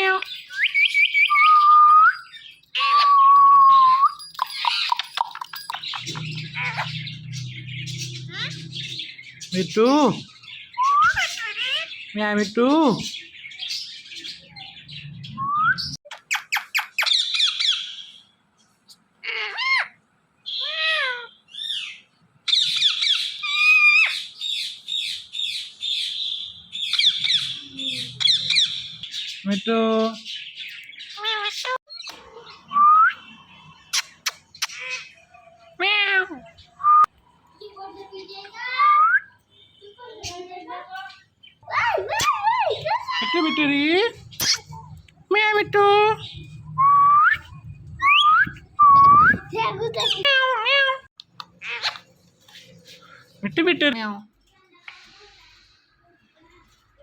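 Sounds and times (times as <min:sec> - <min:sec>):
parrot squawking and chattering: 0:00.0 - 0:15.3, 0:16.0 - 0:18.1, 0:19.2 - 0:29.6, 0:30.8 - 0:36.8, 0:40.1 - 0:46.6, 0:47.4 - 0:53.6
parrot chirping and whistling: 0:00.1 - 0:07.3, 0:10.8 - 0:11.8, 0:46.4 - 0:50.4
parrot chattering and clicks: 0:04.4 - 0:06.9.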